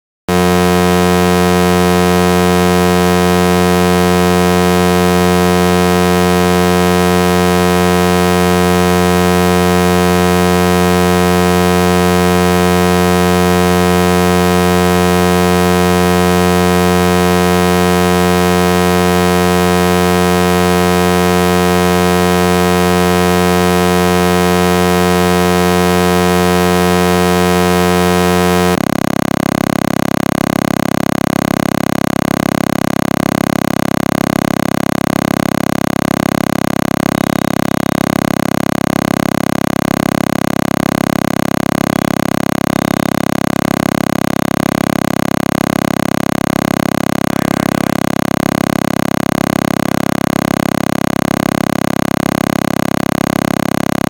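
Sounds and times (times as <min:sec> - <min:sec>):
loud pitched drone: 0:00.3 - 0:28.8, 0:41.1 - 0:50.7.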